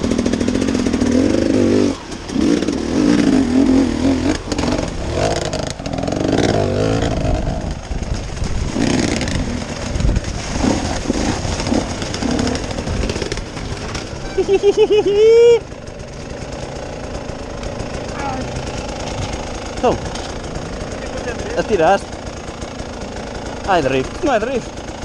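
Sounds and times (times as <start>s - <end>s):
vehicle engine revving under load: 0.0s - 7.9s, 16.2s - 24.6s.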